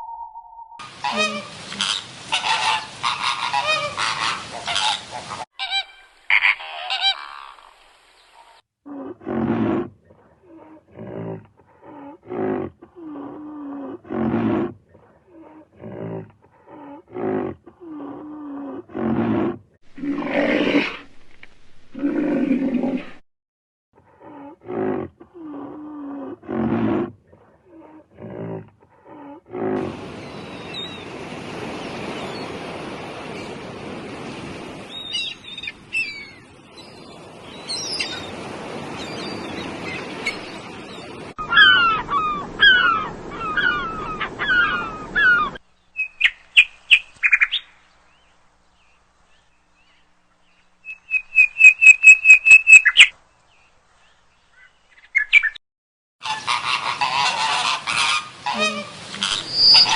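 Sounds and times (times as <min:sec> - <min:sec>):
bird honking: 0:01.0 - 0:07.6, 0:56.2 - 0:59.9
noisy animal sounds: 0:01.0 - 0:07.8, 0:41.1 - 0:45.6, 0:56.2 - 0:59.9.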